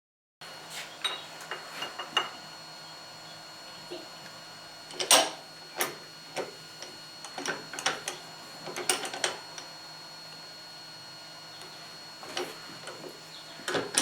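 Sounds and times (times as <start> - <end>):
metal tools clicking and clinking: 4.9 - 5.9.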